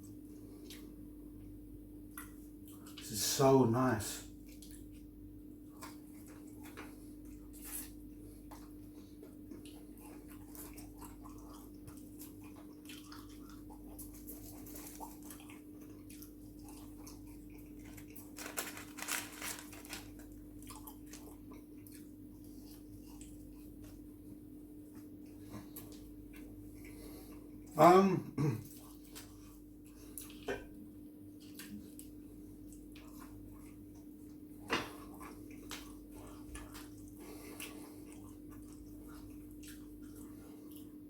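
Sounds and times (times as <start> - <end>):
person chewing and biting: 34.8 - 41.0.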